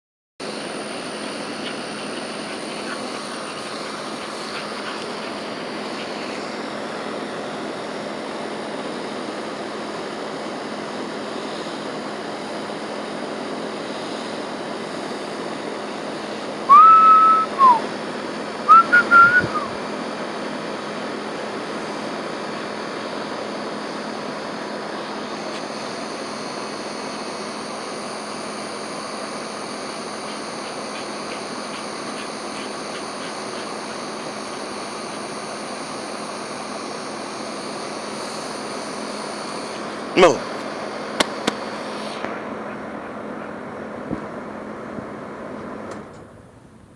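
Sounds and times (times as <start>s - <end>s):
outdoor background hiss: 0.4s - 13.0s, 13.6s - 46.9s
person whistling: 16.7s - 17.9s, 18.7s - 19.8s.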